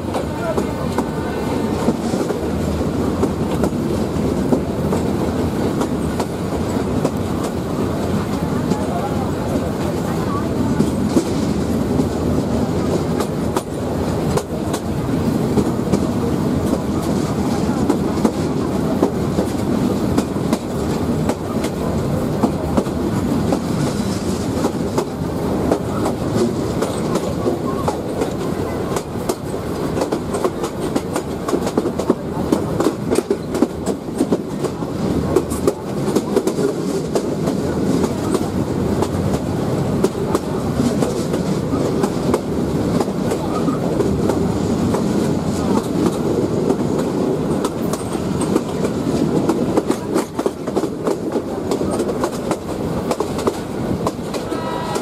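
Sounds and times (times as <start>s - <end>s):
train wheels rumbling on rails: 0.0s - 55.0s
wheels clicking over rail joints: 15.6s - 55.0s.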